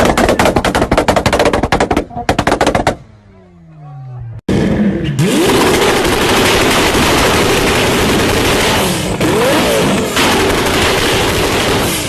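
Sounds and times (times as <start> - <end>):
exhaust crackling and popping: 0.0 - 3.0, 5.2 - 12.0
car engine revving: 4.1 - 12.0.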